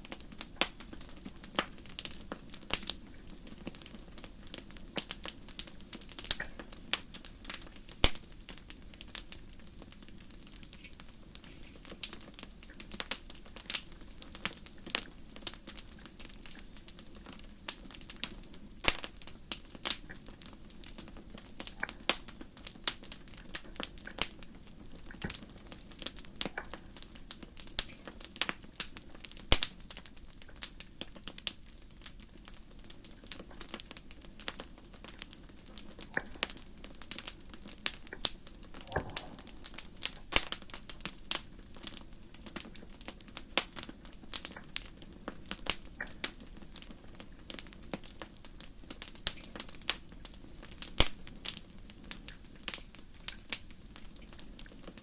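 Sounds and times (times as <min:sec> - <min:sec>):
fire crackling: 0:00.0 - 0:55.0
soft low rush: 0:38.5 - 0:40.5.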